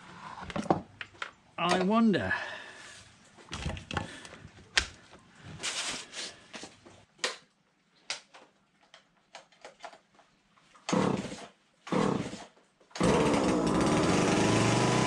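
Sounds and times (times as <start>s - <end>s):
chainsaw engine running: 13.0s - 15.0s
recoil starter pulls: 13.0s - 15.0s.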